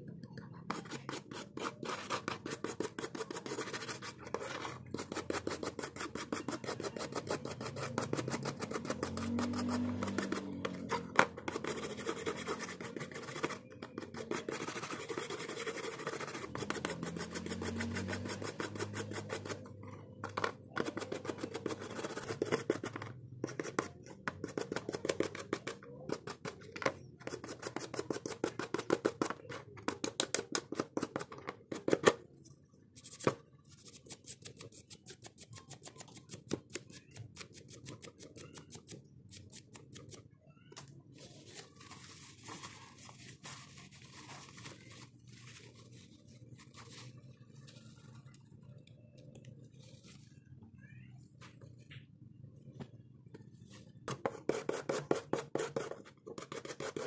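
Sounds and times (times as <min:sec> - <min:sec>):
rapid scratching strokes: 0:00.7 - 0:19.7.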